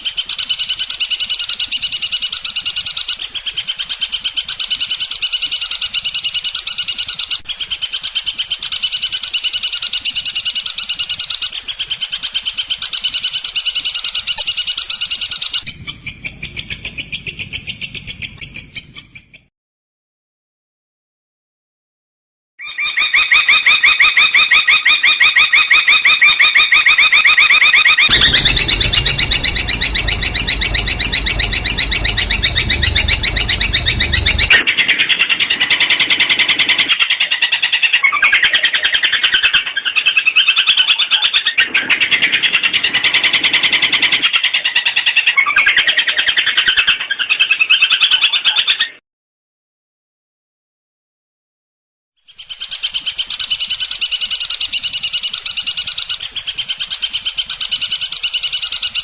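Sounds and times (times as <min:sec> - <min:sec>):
low rumble: 0:28.1 - 0:34.6
shrike singing rapid notes: 0:28.1 - 0:34.6.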